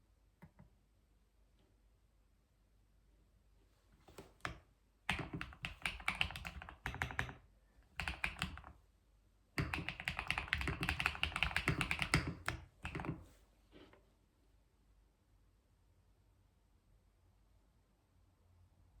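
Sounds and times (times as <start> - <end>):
keyboard typing: 4.2 - 8.8, 9.6 - 13.2.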